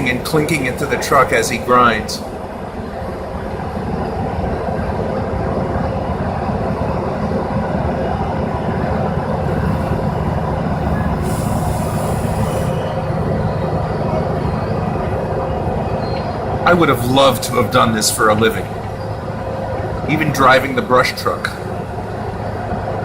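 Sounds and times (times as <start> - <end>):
burst of hiss: 9.5 - 13.0.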